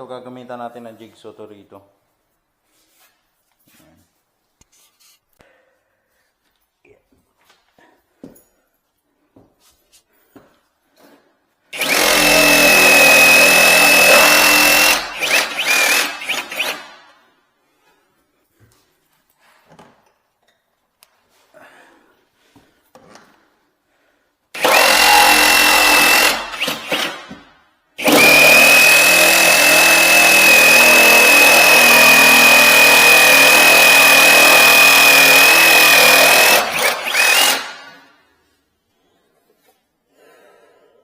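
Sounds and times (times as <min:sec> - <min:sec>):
jigsaw cutting: 0:11.8 - 0:17.0, 0:24.6 - 0:27.3, 0:28.0 - 0:38.1.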